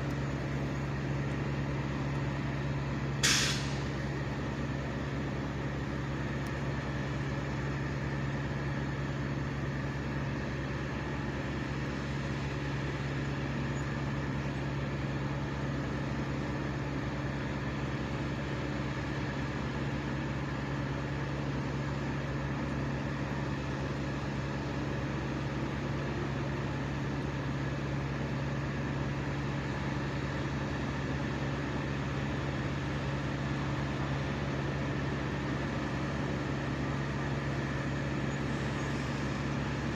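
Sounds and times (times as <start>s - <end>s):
engine running at high speed: 0.0s - 39.9s.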